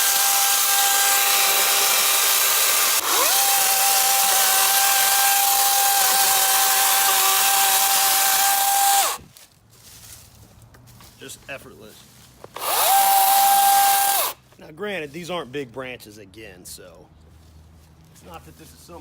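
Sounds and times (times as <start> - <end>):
chainsaw high whine: 0.0 - 9.2, 12.6 - 14.4.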